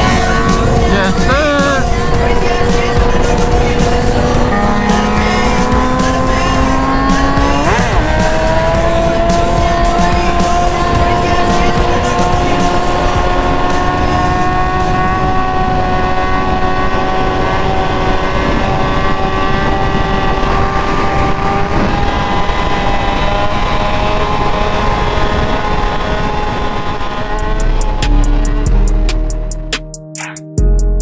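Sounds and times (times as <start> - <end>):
music with heavy bass: 0.0 - 16.0, 27.2 - 31.0
motorcycle engine at high revs: 0.0 - 29.4
wind and road noise: 0.0 - 29.7.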